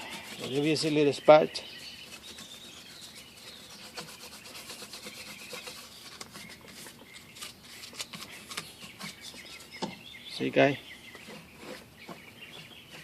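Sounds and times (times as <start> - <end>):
sandpaper rubbing by hand: 0.0 - 9.8.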